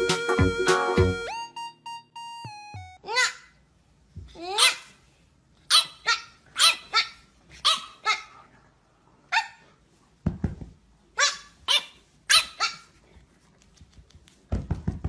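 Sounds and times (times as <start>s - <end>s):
puppy yapping: 5.7s - 8.3s, 11.2s - 13.0s.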